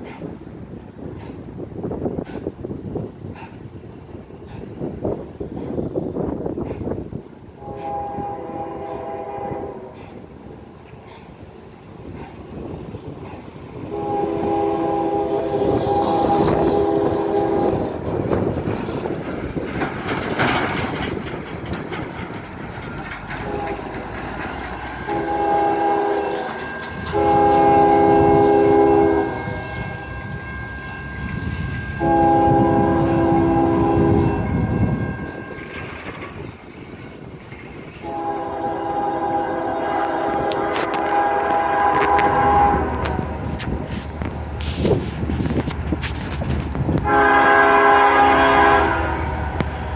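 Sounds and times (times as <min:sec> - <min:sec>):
train rumble and wheel clatter: 0:00.0 - 0:49.9
locomotive air horn blasts: 0:07.6 - 0:10.3, 0:13.8 - 0:17.9, 0:23.4 - 0:24.0, 0:25.0 - 0:30.7, 0:31.7 - 0:35.0, 0:38.0 - 0:44.0, 0:47.0 - 0:49.9.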